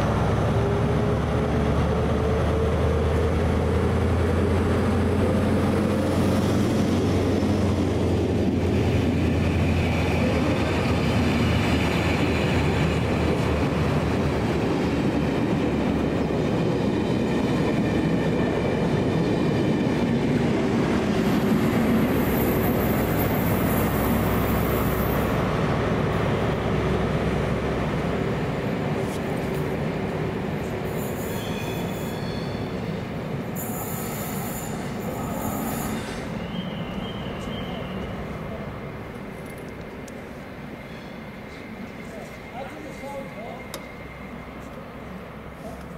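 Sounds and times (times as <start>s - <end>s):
train wheels rumbling on rail: 0.0s - 45.9s
high-pitched wheel squeals: 30.9s - 32.8s, 33.6s - 38.1s.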